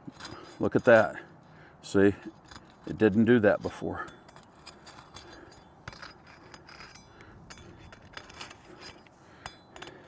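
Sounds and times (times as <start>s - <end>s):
asphalt shingles scraping: 0.0s - 1.3s, 1.9s - 9.2s.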